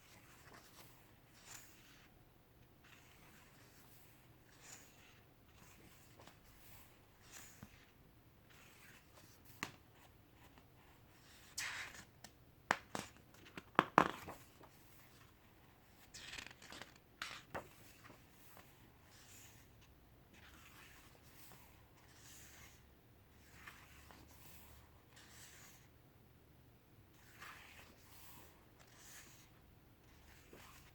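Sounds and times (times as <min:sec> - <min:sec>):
book pages turning: 0:11.3 - 0:19.6, 0:20.4 - 0:22.8, 0:23.4 - 0:25.9, 0:27.1 - 0:30.9.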